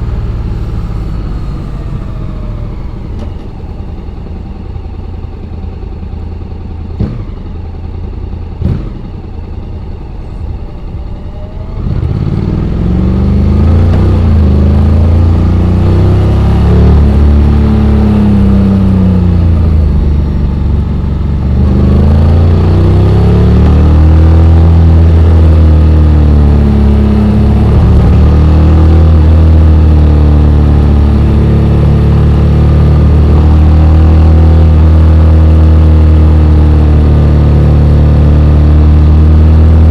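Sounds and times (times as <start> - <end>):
scooter engine accelerating: 0.0 - 4.7, 8.6 - 39.9.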